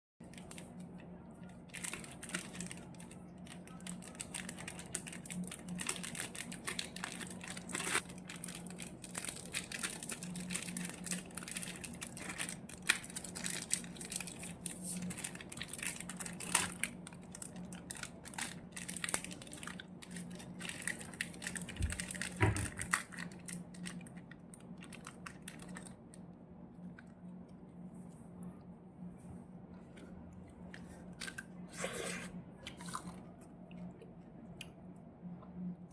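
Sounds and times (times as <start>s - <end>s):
wrapper crinkling and tearing: 0.2s - 26.2s
faint low hum: 0.2s - 35.9s.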